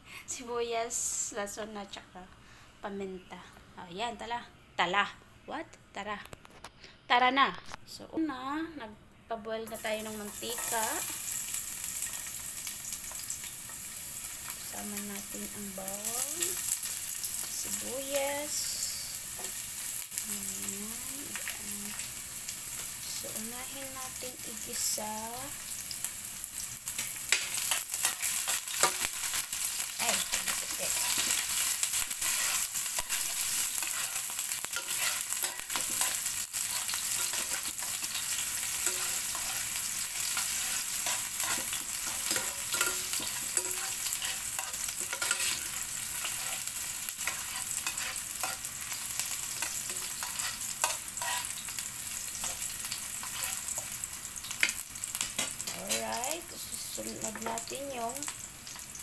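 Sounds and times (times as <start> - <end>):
onions sizzling in oil: 9.6 - 59.0
spoon scraping and tapping pan: 38.8 - 39.7, 40.3 - 46.6, 47.2 - 48.7.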